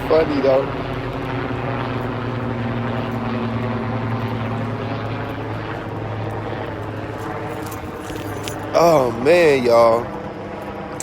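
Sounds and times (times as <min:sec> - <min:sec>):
low mechanical drone: 0:00.0 - 0:11.0.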